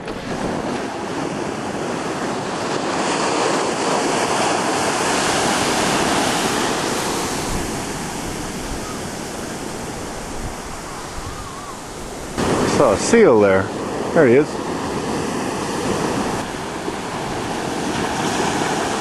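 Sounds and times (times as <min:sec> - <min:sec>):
ocean surf washing ashore: 0:00.0 - 0:19.0.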